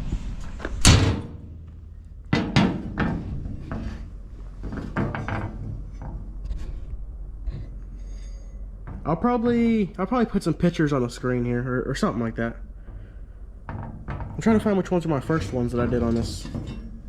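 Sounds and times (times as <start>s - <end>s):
steel plate clunks and knocks: 2.3s - 6.8s, 12.8s - 17.0s.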